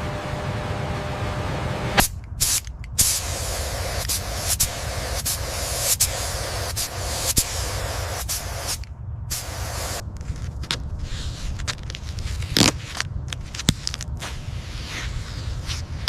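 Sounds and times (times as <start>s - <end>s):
steady hissing noise: 1.6s - 16.0s.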